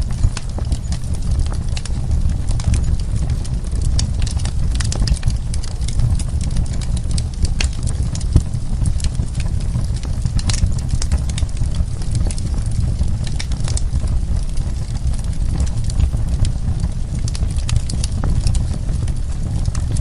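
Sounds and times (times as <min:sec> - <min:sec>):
burning wood crackles and pops: 0:00.0 - 0:20.0
low rumble of flames: 0:00.0 - 0:20.0.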